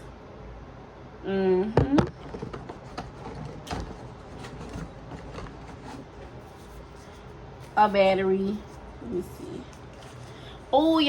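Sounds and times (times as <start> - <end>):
hands handling packaging: 2.1 - 9.1, 9.7 - 10.8.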